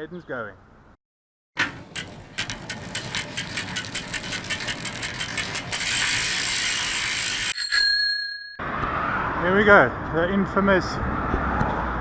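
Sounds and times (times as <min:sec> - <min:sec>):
bicycle freehub ticking: 0:01.8 - 0:07.6.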